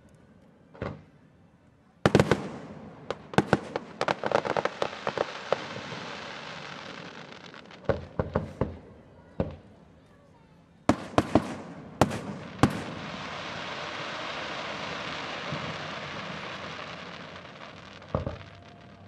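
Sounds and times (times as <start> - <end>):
fireworks crackling hiss: 2.0 - 8.8, 10.9 - 19.0
fireworks bangs: 2.0 - 9.7, 10.9 - 19.0.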